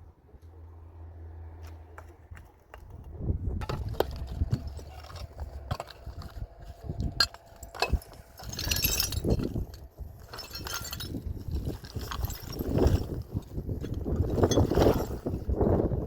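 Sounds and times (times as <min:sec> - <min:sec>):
hard objects knocking and clinking: 0:03.6 - 0:15.3.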